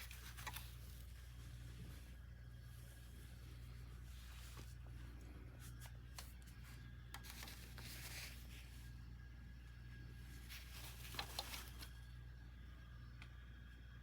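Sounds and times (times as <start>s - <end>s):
faint clicks and rustles: 0.0s - 9.0s, 10.2s - 12.1s
low electrical hum: 0.0s - 14.0s.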